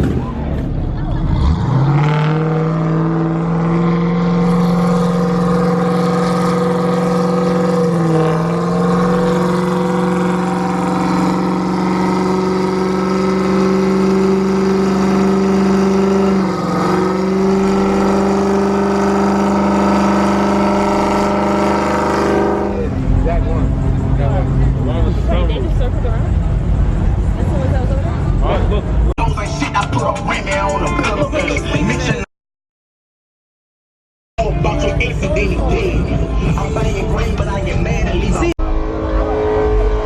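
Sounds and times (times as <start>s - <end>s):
car engine at high revs: 0.0s - 29.1s.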